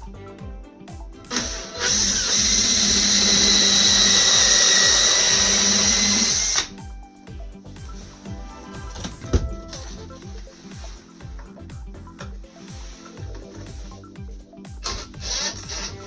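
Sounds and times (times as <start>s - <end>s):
background music: 0.0s - 16.0s
power tool whine: 1.3s - 6.8s, 14.8s - 16.0s.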